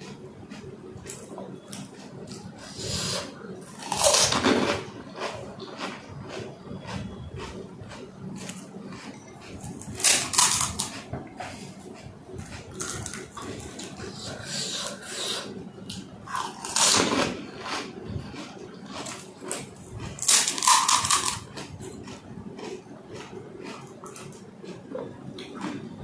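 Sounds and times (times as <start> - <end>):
chewing and crunching: 0.0 - 26.0.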